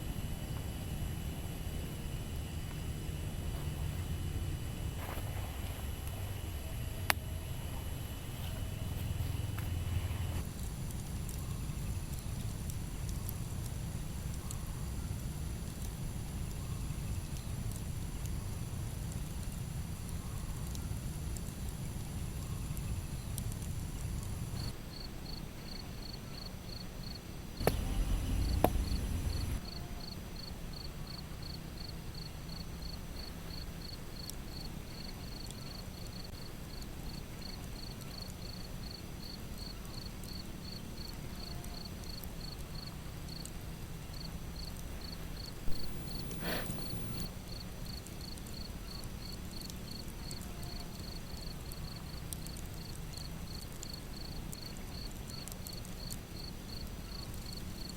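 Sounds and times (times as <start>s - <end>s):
cricket chirping: 20.1s - 57.9s.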